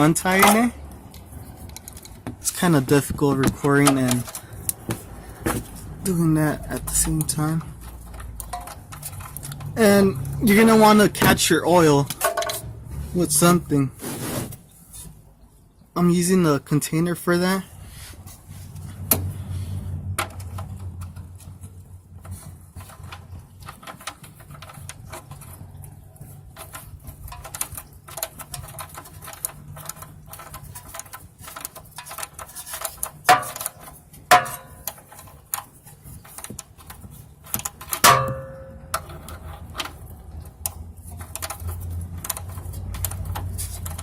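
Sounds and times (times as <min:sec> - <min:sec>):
metallic knocks: 0:07.8 - 0:12.9, 0:33.2 - 0:35.1, 0:37.6 - 0:39.8.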